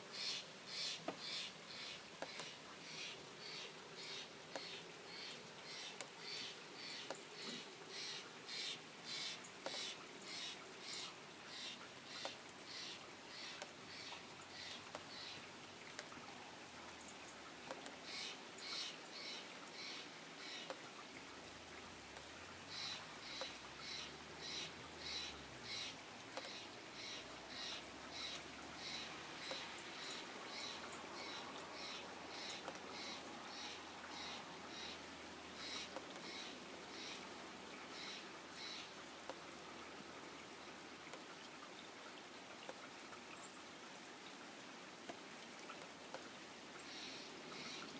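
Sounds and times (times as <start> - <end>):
rain falling: 0.0 - 47.9.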